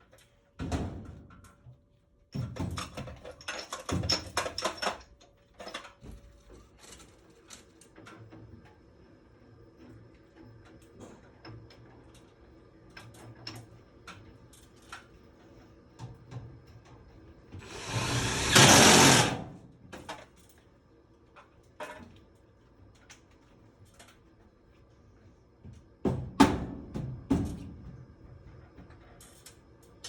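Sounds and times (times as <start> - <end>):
small power tool burst: 17.6 - 19.6.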